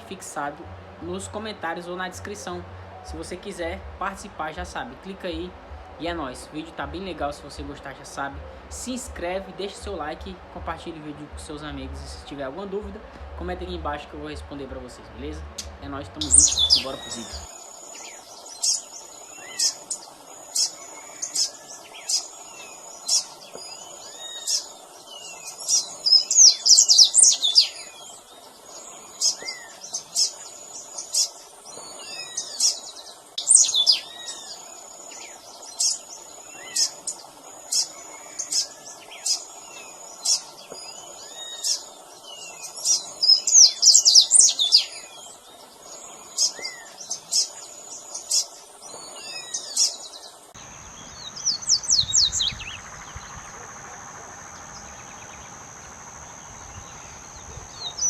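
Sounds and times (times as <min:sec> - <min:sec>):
fast jumbled bird notes: 0:00.0 - 0:58.0
bird whistling song: 0:15.5 - 0:28.3, 0:29.1 - 0:45.4, 0:46.3 - 0:53.4.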